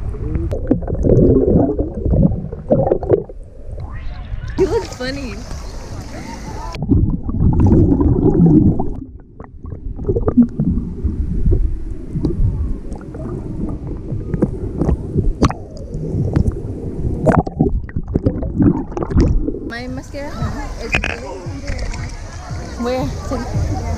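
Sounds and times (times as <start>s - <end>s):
gurgling bubbles: 0.0s - 19.7s
muffled underwater rumble: 0.0s - 23.9s
sharp underwater clicks: 20.8s - 22.3s.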